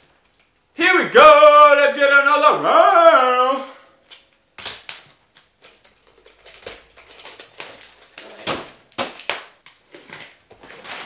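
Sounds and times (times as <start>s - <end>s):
wrapping paper crinkling: 3.4s - 11.0s.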